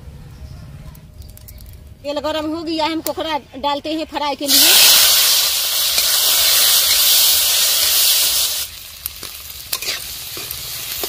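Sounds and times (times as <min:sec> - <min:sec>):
crab sizzling in hot oil: 0:04.5 - 0:11.0.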